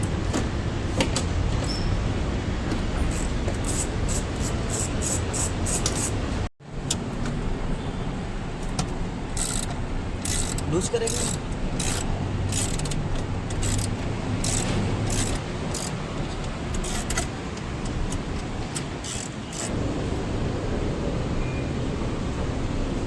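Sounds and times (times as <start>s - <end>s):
background traffic noise: 0.0s - 23.0s
hand tools clicking and clinking: 2.7s - 6.3s, 8.6s - 19.7s.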